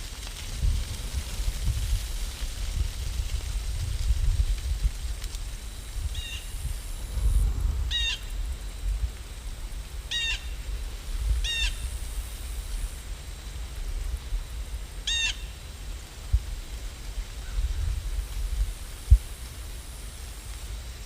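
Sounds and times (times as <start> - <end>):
low steady rumble: 0.0 - 20.7
bird calling: 10.1 - 10.6, 15.1 - 15.5.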